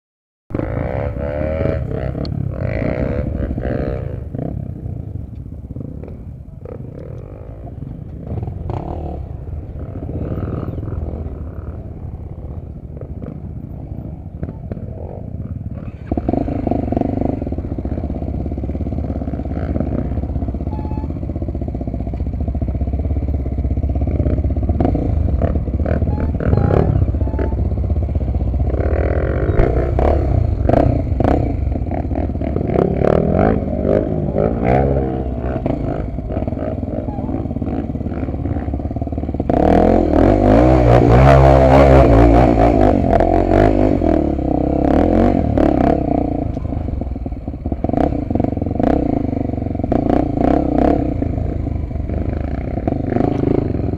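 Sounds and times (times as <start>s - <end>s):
motorcycle engine running: 0.5s - 53.9s.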